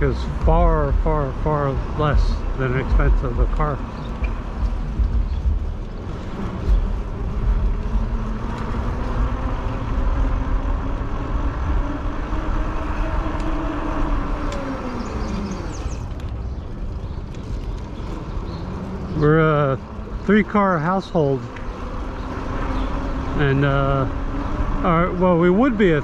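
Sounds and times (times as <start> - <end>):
humming tone: 0.0 - 16.2
road noise: 0.0 - 26.0
wind rumbling on microphone: 0.0 - 26.0.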